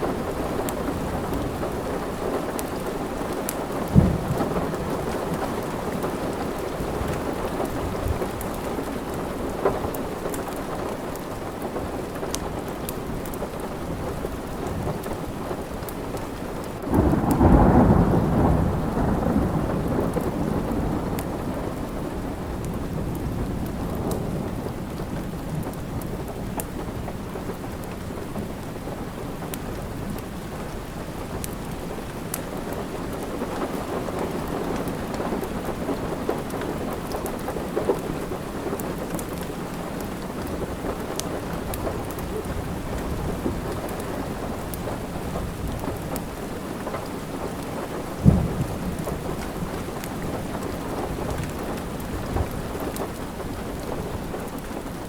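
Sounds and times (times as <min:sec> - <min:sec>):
steady rain: 0:00.0 - 0:55.0
thunder rolling: 0:03.8 - 0:08.3, 0:16.9 - 0:25.6, 0:48.1 - 0:54.1
sharp thunder crack: 0:03.9 - 0:05.2, 0:16.9 - 0:21.5, 0:48.2 - 0:49.7.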